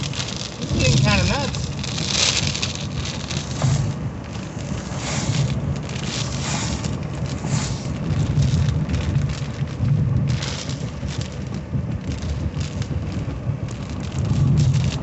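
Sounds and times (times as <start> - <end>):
tyres hissing on wet road: 0.0 - 9.2, 9.8 - 11.4
rain beating on a car: 0.0 - 15.0
low pulse: 1.8 - 15.0.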